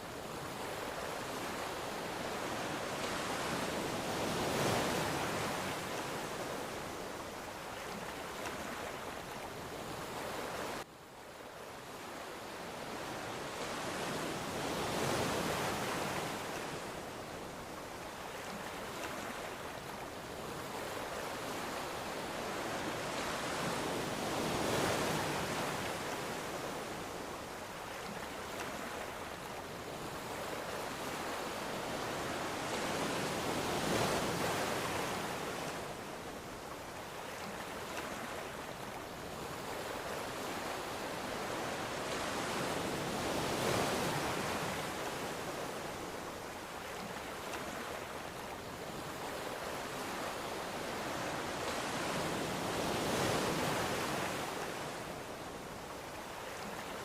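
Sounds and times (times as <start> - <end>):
ocean waves breaking: 12.9 - 57.0.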